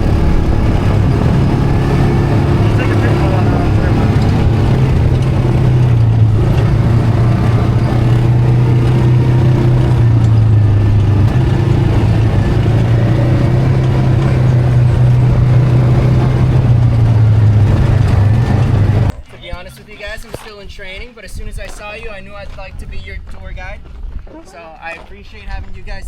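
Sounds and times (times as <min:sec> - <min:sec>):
atv engine running: 0:00.0 - 0:20.1.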